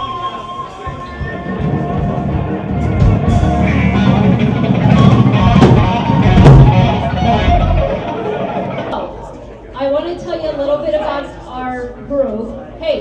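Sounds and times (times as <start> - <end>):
rock band playing live: 1.0 - 8.9
heavy drum hits: 1.6 - 8.0.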